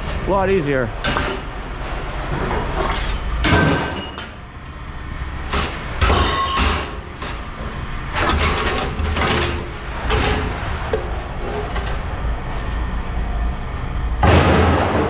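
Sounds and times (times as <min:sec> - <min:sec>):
machinery humming: 0:00.0 - 0:15.0
scrap metal clanking: 0:01.0 - 0:04.4.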